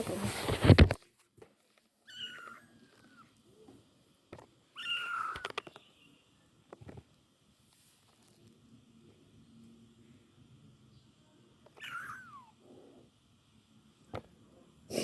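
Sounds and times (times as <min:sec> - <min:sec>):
cat meowing: 0:02.1 - 0:03.2, 0:04.8 - 0:05.5, 0:11.7 - 0:12.5.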